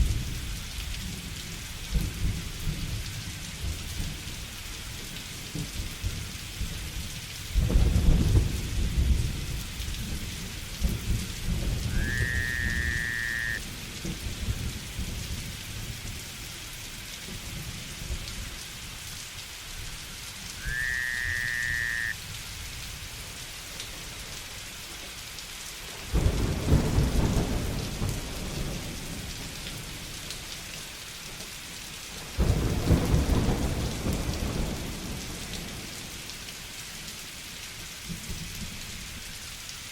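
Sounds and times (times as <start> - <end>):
heavy rain: 0.0 - 39.9
thunder rumbling: 7.6 - 16.0, 26.1 - 30.0, 32.4 - 35.9
rising whistle-like call: 11.9 - 13.6, 20.6 - 22.2.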